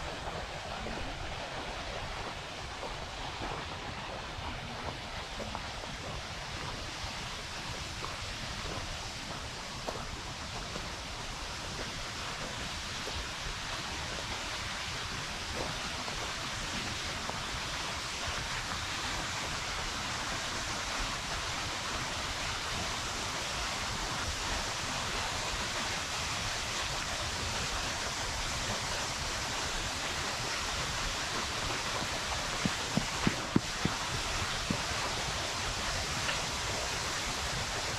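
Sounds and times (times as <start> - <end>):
waterfall roaring: 0.0 - 37.9.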